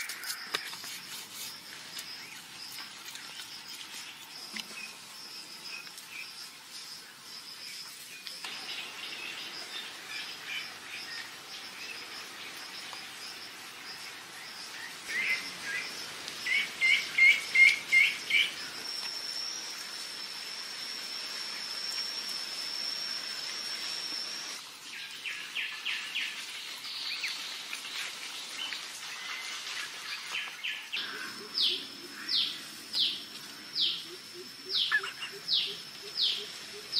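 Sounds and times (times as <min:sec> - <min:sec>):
birds chirping: 0:08.2 - 0:18.8, 0:28.6 - 0:36.9.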